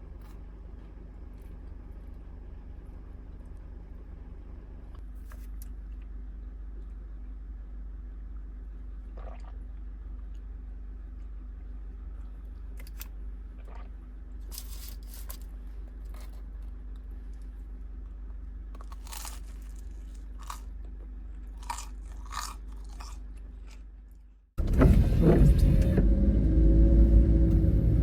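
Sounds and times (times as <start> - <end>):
steady low hum: 0.0 - 28.0
crisp crunching: 18.8 - 24.2.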